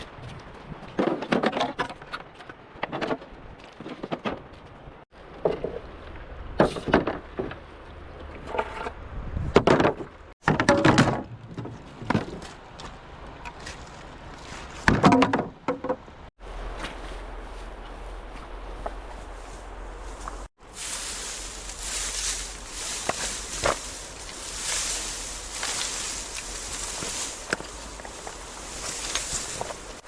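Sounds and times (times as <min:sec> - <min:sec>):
bamboo poles knocking: 0:14.9 - 0:16.1, 0:21.8 - 0:30.0.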